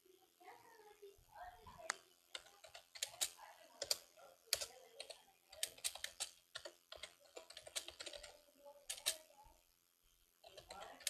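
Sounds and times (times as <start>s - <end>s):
sharp clicks and taps: 1.8s - 9.2s.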